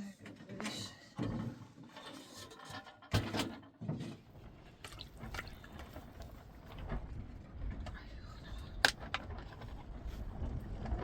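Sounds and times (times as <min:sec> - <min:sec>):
water splashing and dripping: 0:04.8 - 0:06.4.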